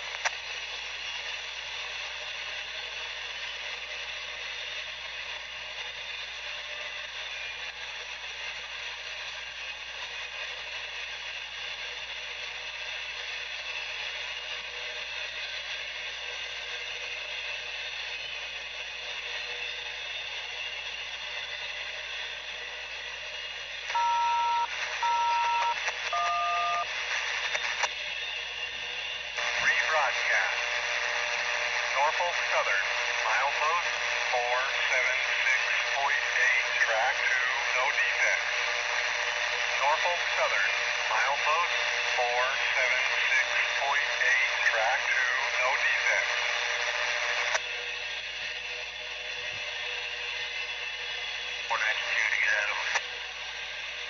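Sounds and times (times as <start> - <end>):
scanner radio static hiss: 23.8 - 27.8, 29.4 - 47.6, 50.5 - 53.6
short two-tone beeps: 24.0 - 26.8.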